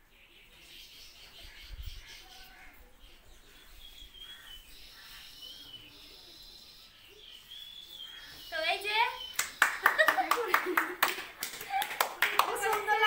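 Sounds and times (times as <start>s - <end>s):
faint bird chirps: 0.0s - 9.9s.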